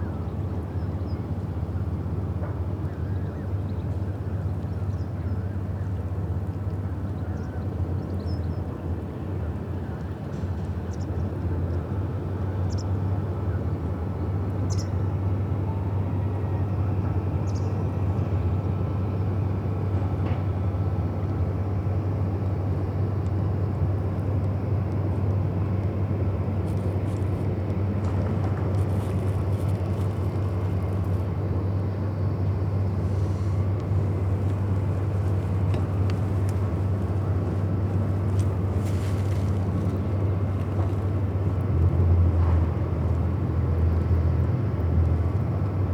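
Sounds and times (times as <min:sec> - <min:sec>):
low engine rumble: 0:18.7 - 0:45.9.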